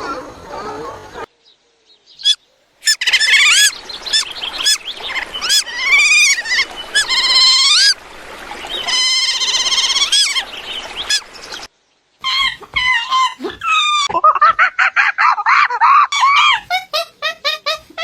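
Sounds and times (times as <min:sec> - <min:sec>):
bird calls: 0:00.0 - 0:14.1.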